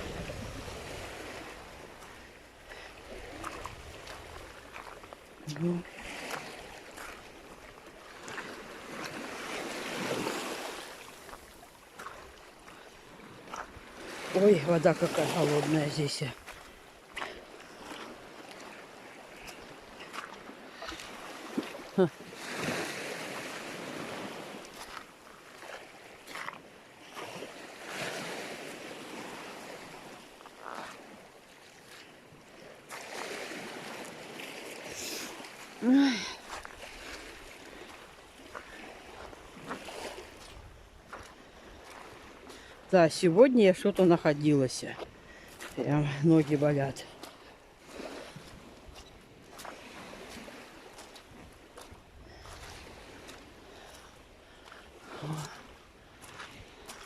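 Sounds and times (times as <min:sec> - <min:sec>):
wind on microphone: 0:00.0 - 0:01.8
sea waves washing on shore: 0:00.0 - 0:57.0.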